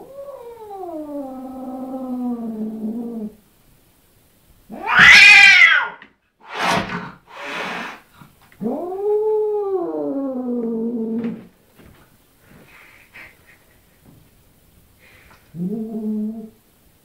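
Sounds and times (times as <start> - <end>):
cat yowling: 4.7 - 6.0
cat screeching: 4.7 - 8.0
cat hissing: 4.8 - 8.8.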